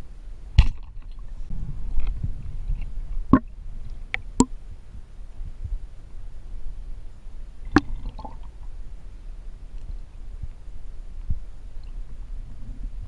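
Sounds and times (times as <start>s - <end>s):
low rumble: 0.0s - 13.0s
water sloshing and gurgling: 0.6s - 4.6s, 7.6s - 8.8s.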